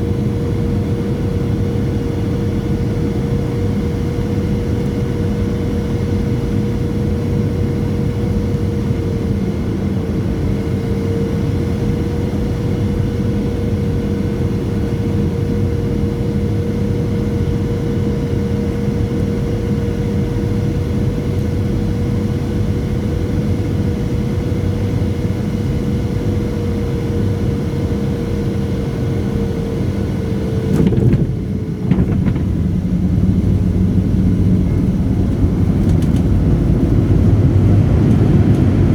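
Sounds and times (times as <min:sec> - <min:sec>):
engine whine: 0:00.0 - 0:38.9
jet engine rumble in cabin: 0:00.0 - 0:38.9
short knock: 0:30.7 - 0:32.6.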